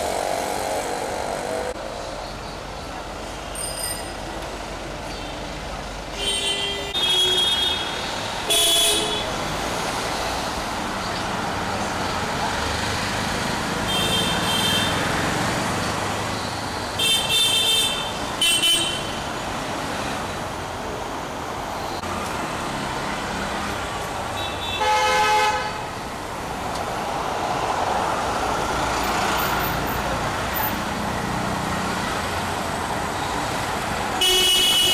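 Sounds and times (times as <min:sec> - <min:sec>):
traffic rumble: 0:00.0 - 0:34.9
car horns honking: 0:06.1 - 0:09.4, 0:13.8 - 0:15.1, 0:16.9 - 0:19.3, 0:24.3 - 0:25.9, 0:34.2 - 0:34.9.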